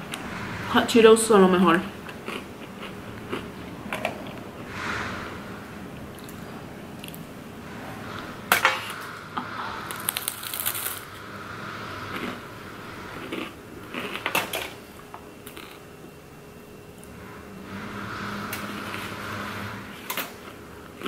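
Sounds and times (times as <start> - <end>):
crunching and chewing: 2.0 - 4.5, 9.9 - 11.1, 12.0 - 15.8.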